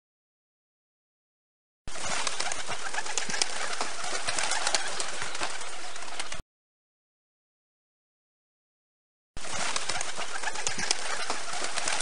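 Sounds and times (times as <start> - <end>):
pigeons with sharp clicks: 9.6 - 12.0.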